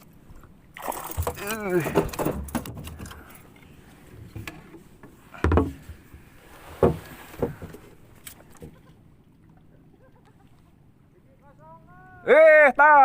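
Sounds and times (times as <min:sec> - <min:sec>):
sharp knocks and thumps: 0:05.4 - 0:07.8.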